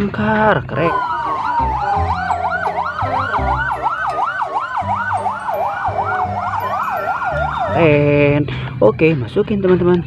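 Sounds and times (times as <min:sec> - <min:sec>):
low electronic tune: 0:00.6 - 0:08.5
toy fire engine siren: 0:00.8 - 0:08.0.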